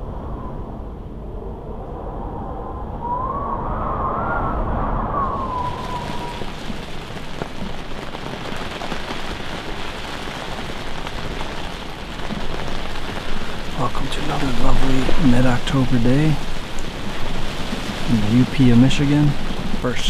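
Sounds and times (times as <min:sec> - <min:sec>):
low rumble with wavering whine: 0:00.0 - 0:08.2
steady rain hiss: 0:04.8 - 0:20.0.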